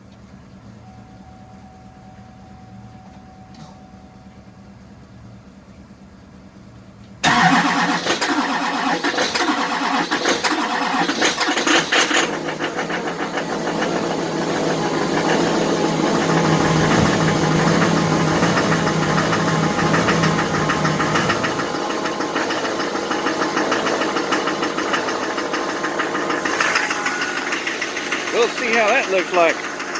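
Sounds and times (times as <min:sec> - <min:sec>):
diesel engine cold starting: 0:07.2 - 0:29.9.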